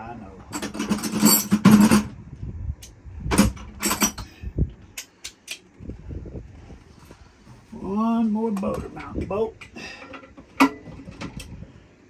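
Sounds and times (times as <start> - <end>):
metal tools clinking and scraping: 0.5 - 2.1, 3.4 - 4.4.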